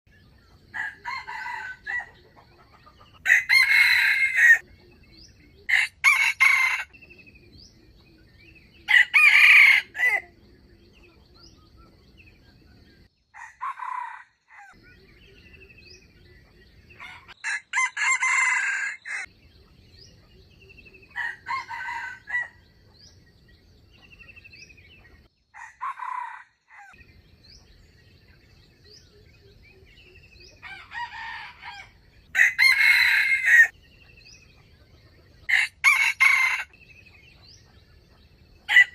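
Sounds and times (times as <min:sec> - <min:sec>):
rooster crowing: 0:00.7 - 0:02.2, 0:03.2 - 0:04.6, 0:05.7 - 0:07.0, 0:08.9 - 0:10.3, 0:13.4 - 0:14.8, 0:17.0 - 0:19.3, 0:21.1 - 0:22.6, 0:25.6 - 0:27.0, 0:30.5 - 0:33.7, 0:35.5 - 0:36.8, 0:38.7 - 0:38.9.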